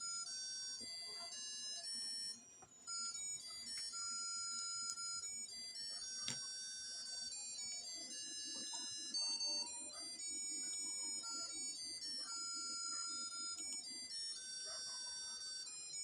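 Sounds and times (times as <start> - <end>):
tinny electronic beep melody: 2.9 - 15.4.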